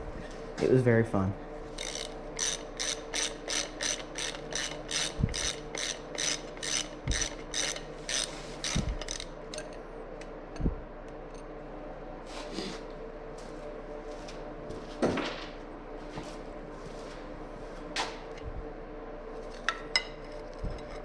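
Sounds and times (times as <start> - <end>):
ratchet wrench cranking: 1.7 - 9.3.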